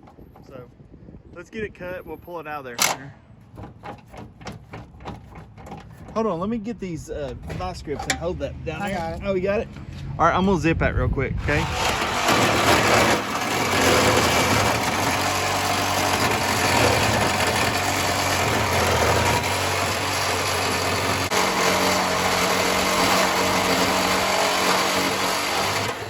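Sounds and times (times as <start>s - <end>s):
cut-off tool cutting metal: 11.4s - 26.0s.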